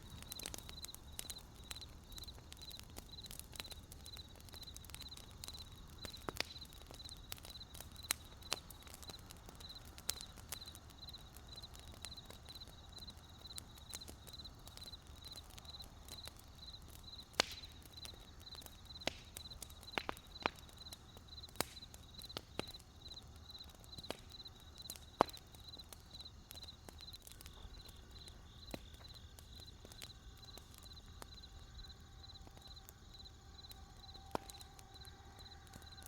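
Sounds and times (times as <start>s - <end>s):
crickets chirping: 0.0s - 36.0s
wood fire crackling and popping: 0.0s - 36.0s.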